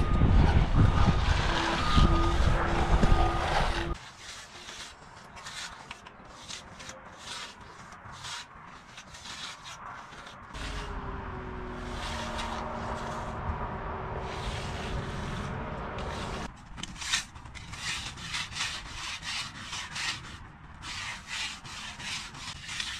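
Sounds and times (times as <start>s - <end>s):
low rumble with hum: 0.0s - 4.0s, 10.6s - 16.5s
tools scraping wet concrete: 0.0s - 13.4s, 14.2s - 22.9s.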